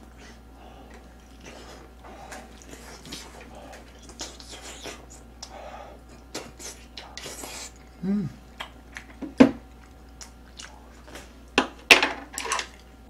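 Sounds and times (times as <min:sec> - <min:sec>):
person chewing and lip-smacking: 0:00.9 - 0:11.3.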